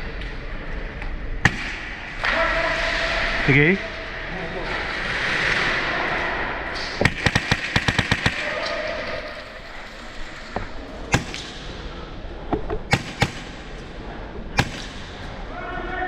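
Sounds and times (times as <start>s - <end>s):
airsoft rifle shots: 1.4s - 3.5s, 7.0s - 9.8s, 11.0s - 12.0s, 12.9s - 15.5s.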